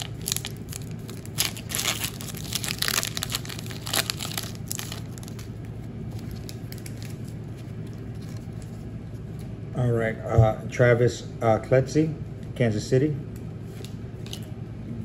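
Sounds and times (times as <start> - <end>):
plastic crinkling and rustling: 0.0 - 8.9
low steady hum: 0.0 - 15.0.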